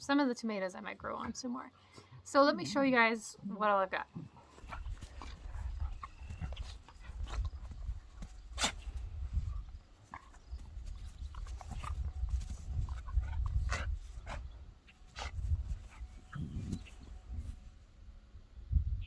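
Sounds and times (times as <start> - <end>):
puppies scuffling: 4.3 - 17.7
rustles and clicks: 4.4 - 17.8.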